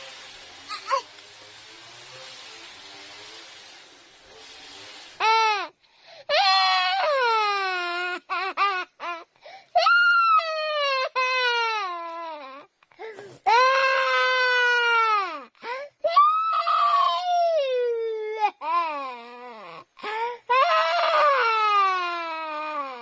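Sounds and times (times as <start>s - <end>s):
faint hiss: 0.0s - 23.0s
baby crying: 6.3s - 23.0s.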